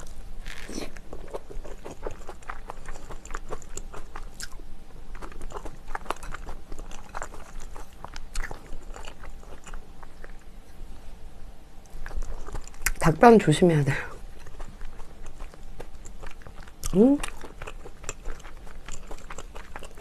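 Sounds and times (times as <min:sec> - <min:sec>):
close chewing with crunches: 0:00.0 - 0:10.5, 0:11.9 - 0:20.0.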